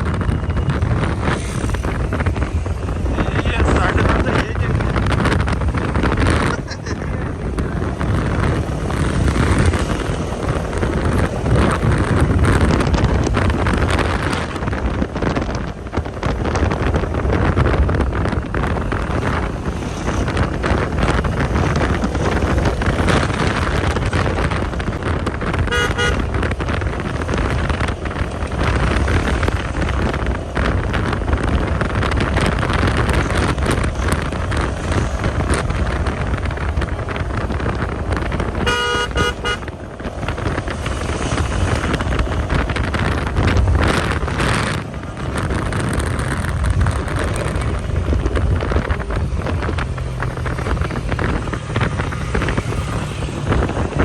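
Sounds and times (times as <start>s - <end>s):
vehicle engine rumble: 0.0s - 54.0s
wind buffeting microphone: 0.0s - 54.0s
short horn toot: 25.7s - 26.2s, 38.6s - 39.6s.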